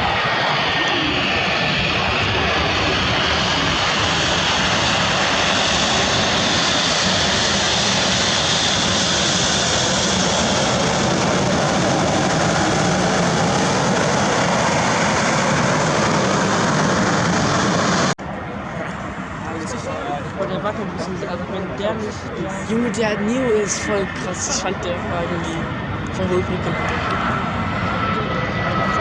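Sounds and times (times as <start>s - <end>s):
jet airliner passing: 0.0s - 29.0s.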